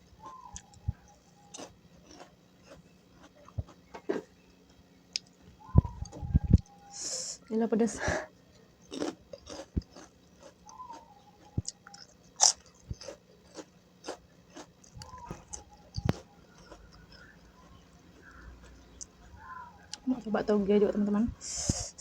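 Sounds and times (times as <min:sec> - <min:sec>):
chewing crisp food: 0:00.1 - 0:05.4, 0:08.5 - 0:20.1.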